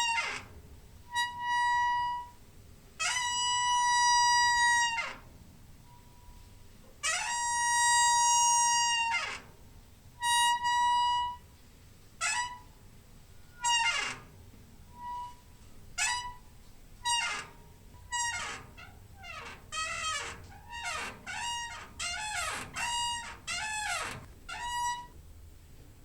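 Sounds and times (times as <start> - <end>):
door hinge squeaking: 0.0 - 2.4, 3.0 - 5.3, 7.0 - 9.6, 10.2 - 11.5, 12.2 - 12.7, 13.4 - 25.2.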